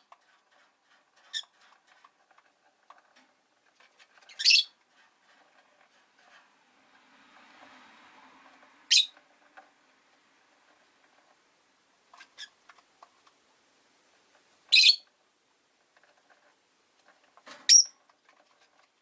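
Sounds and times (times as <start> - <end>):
lovebirds shrill calls: 4.3 - 4.7, 8.9 - 9.2, 14.7 - 15.0, 17.7 - 17.9.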